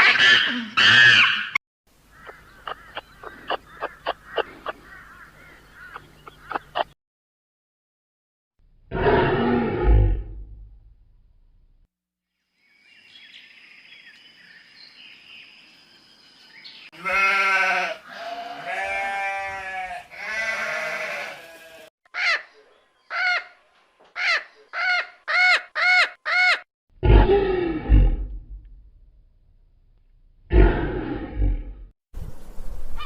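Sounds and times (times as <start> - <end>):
animal low roar: 8.9 - 10.8, 27.0 - 28.5, 30.5 - 31.9
animal bleat-like calls: 17.0 - 21.9.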